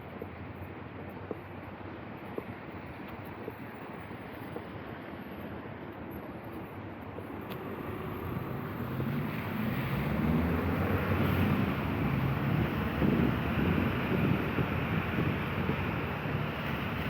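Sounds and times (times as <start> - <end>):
vehicle engine: 7.4 - 17.0
tyres hissing on wet asphalt: 7.5 - 17.0.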